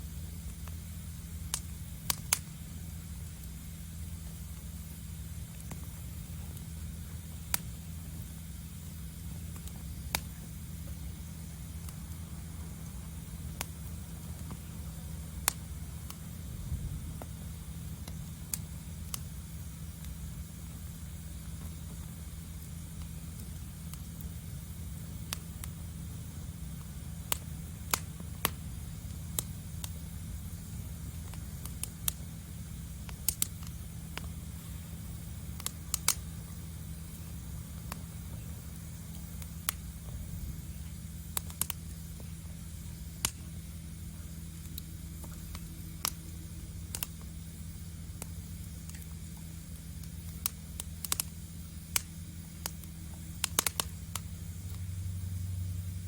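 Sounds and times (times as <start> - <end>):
campfire crackling: 0.0 - 56.0
low rumble: 10.8 - 18.5.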